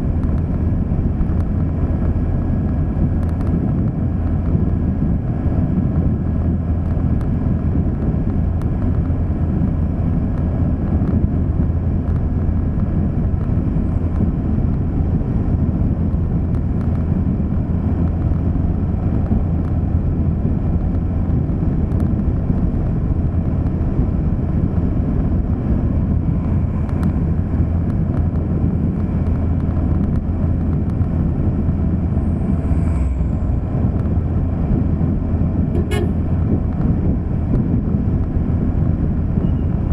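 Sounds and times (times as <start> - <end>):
road and engine noise: 0.0 - 39.9
wind on microphone: 0.0 - 39.9.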